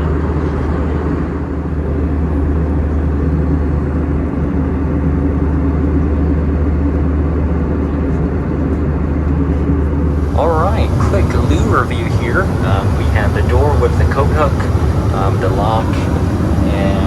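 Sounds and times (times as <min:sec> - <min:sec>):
aircraft engines droning: 0:00.0 - 0:17.0
air rushing around fuselage: 0:10.1 - 0:17.0.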